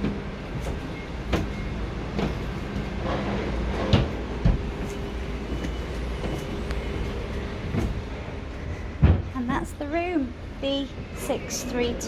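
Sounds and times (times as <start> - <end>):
sharp knocks and clunks: 0.0 - 8.1
low outdoor rumble: 0.0 - 12.0.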